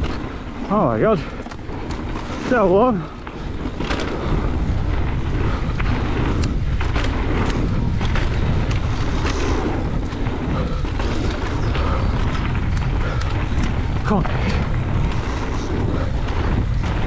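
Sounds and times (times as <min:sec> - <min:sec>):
bike rattling clicks and knocks: 0:00.0 - 0:04.1
tyres rumbling over dirt trail: 0:00.0 - 0:17.0.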